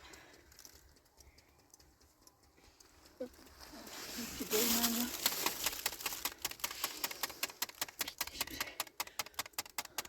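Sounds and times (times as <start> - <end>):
rapid sharp clicking: 4.6 - 10.0.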